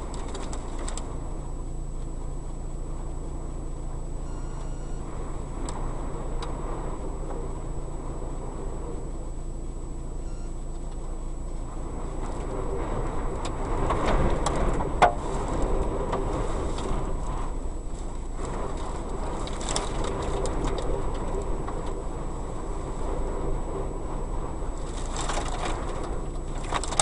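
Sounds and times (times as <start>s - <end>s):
light clicks and rattles: 0.0s - 1.2s, 24.8s - 27.0s
strong wind blowing: 5.0s - 9.9s, 11.0s - 27.0s.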